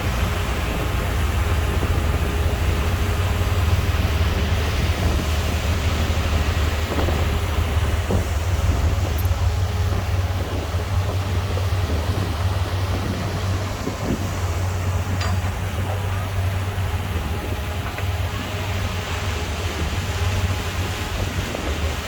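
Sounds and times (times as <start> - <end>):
heavy diesel engine rumbling: 0.0 - 22.0.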